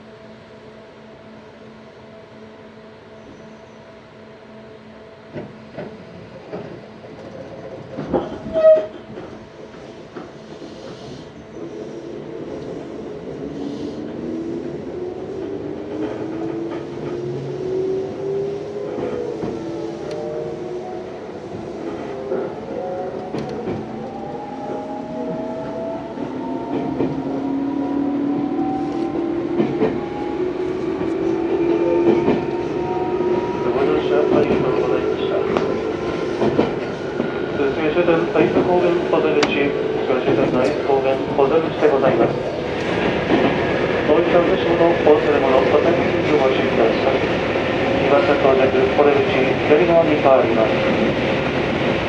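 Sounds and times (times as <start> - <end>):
train running noise: 0.0 - 52.0
train wheels clicking over rail joints: 5.3 - 11.3, 35.5 - 37.4.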